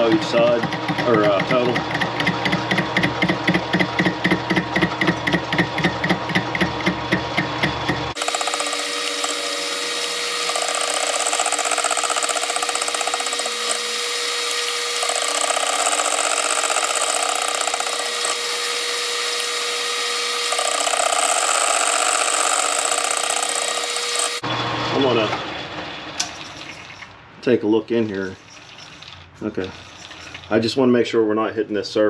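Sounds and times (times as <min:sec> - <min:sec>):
metal cutting noise: 0:08.1 - 0:25.2
metal lathe running: 0:08.2 - 0:24.5.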